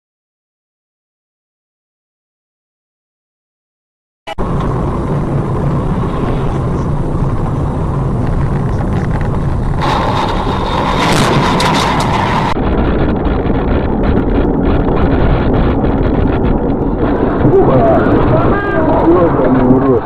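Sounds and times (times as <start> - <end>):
vehicle engine and road noise: 4.3 - 18.0
bright whine with rattling: 4.3 - 20.0.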